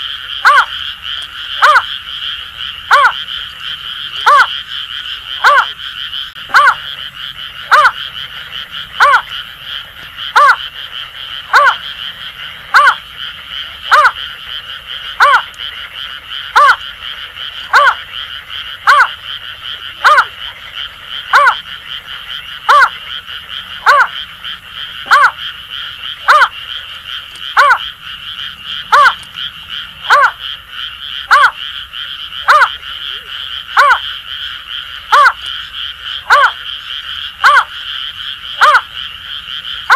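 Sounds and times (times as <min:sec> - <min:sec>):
chorus of frogs: 0:00.0 - 0:39.9
bird hooting call: 0:02.9 - 0:03.2, 0:06.5 - 0:06.8, 0:09.0 - 0:09.3, 0:10.3 - 0:10.6, 0:11.5 - 0:11.8, 0:28.8 - 0:29.3.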